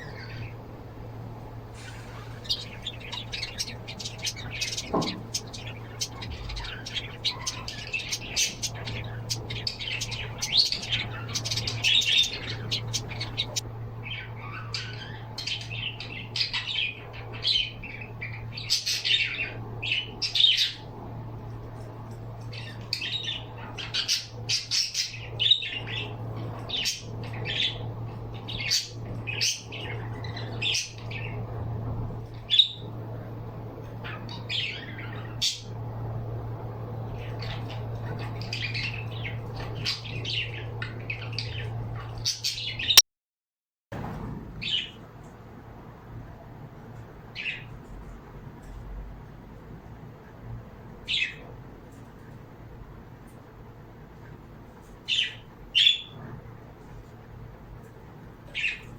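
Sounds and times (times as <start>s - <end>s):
pet birds chirping and squawking: 0.0s - 21.1s, 21.7s - 43.0s, 44.6s - 45.0s, 47.2s - 48.7s, 51.0s - 52.3s, 54.8s - 57.0s, 57.9s - 58.9s
steady low hum: 0.0s - 43.0s.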